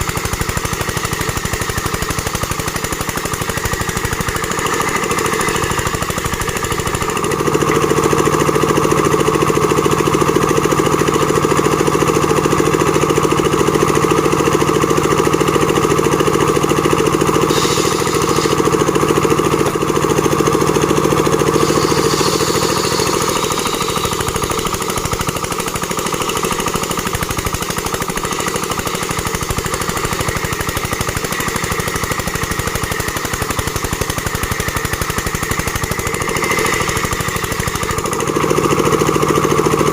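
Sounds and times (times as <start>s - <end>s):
plank-making machine rattling: 0.0s - 39.9s.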